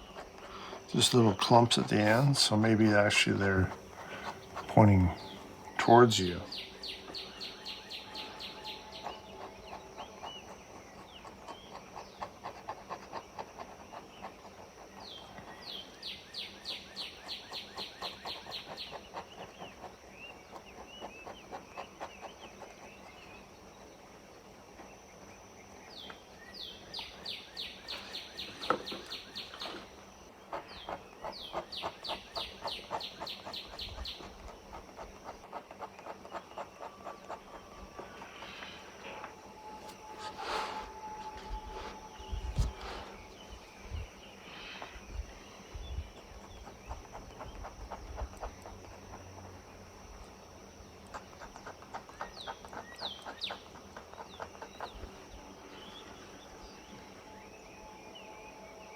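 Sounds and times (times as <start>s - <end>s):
pen scratching on paper: 0.0s - 6.2s, 7.8s - 15.9s, 29.6s - 43.4s.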